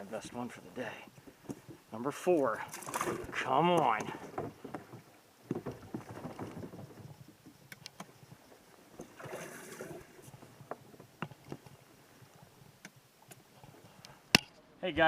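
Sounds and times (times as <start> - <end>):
faint handling knocks and clicks: 1.2 - 1.8, 2.4 - 9.2, 10.2 - 14.6.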